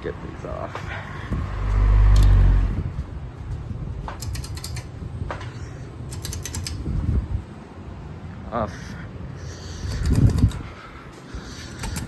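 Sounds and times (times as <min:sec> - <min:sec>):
ceiling fans humming: 0:00.0 - 0:12.0
loud low rumble: 0:01.3 - 0:03.9.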